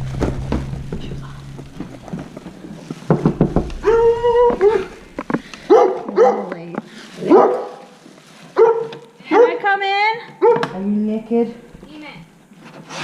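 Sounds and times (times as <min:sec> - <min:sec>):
quick knocks: 0:03.1 - 0:05.9
dog barking and whining: 0:05.7 - 0:06.5, 0:08.6 - 0:09.6, 0:10.4 - 0:10.7.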